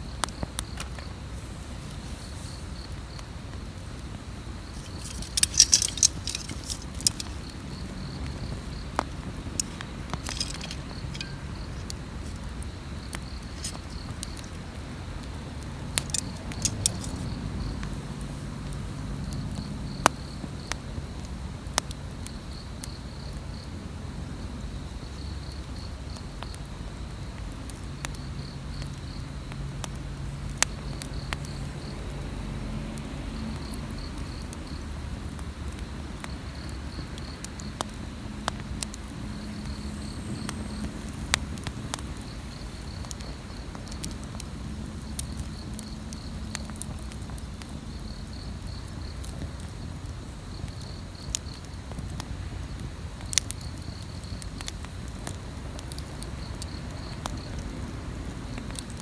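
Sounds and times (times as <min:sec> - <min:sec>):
campfire crackling and popping: 0:00.0 - 0:59.0
insect chirping trills: 0:04.4 - 0:18.4.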